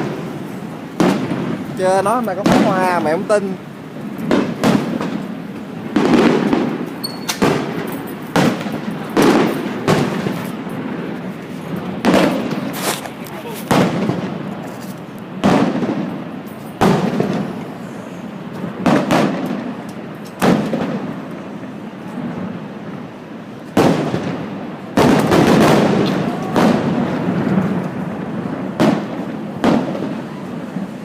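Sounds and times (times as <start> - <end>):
fireworks bursting with echoing rumble: 0.0 - 31.0.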